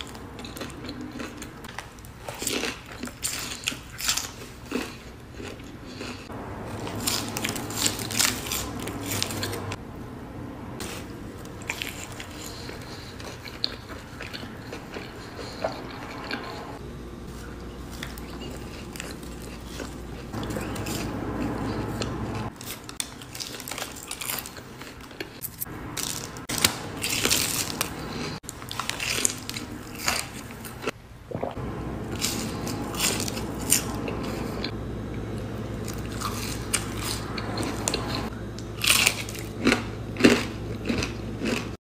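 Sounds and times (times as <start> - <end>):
crunchy bites and chewing: 0.0 - 9.7, 10.8 - 16.6, 17.9 - 30.9, 35.8 - 41.8
wet mouth sounds: 31.3 - 31.6.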